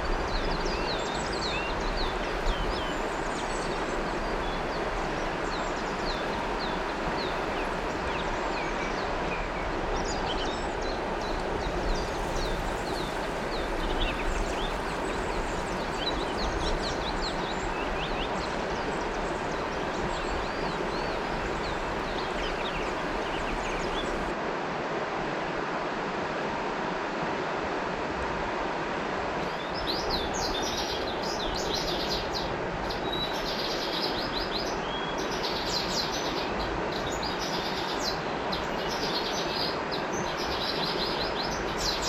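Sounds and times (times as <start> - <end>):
river water rushing: 0.0 - 42.0
birds chirping: 0.4 - 24.3.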